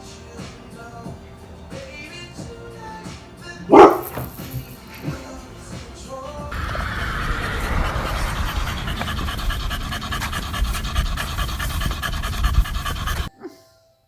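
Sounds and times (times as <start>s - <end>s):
dog panting: 6.5s - 13.3s.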